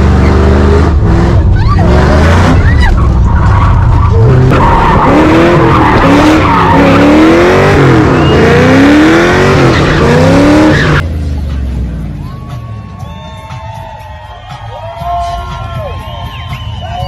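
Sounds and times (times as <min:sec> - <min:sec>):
car engine revving hard: 0:00.0 - 0:02.6, 0:04.1 - 0:11.0.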